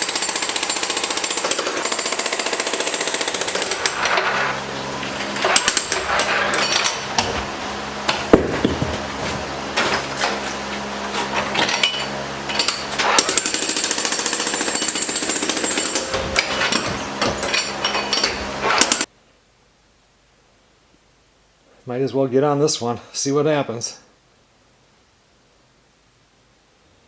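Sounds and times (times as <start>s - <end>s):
jackhammer chipping concrete: 0.0s - 19.1s.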